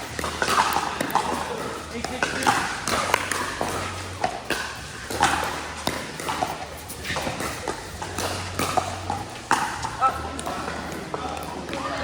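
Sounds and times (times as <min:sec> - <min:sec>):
paddles popping against ball: 0:00.0 - 0:11.8
ball bouncing: 0:00.0 - 0:12.0
voices in background: 0:07.0 - 0:12.0.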